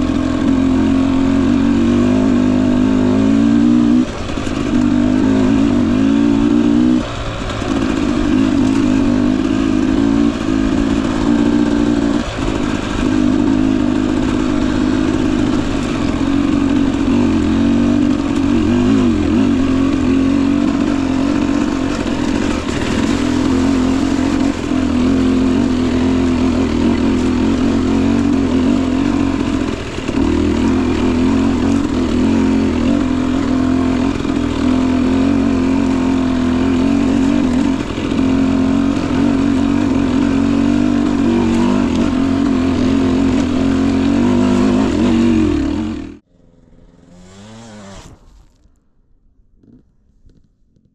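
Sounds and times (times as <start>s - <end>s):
dirt bike engine running: 0.0s - 50.9s.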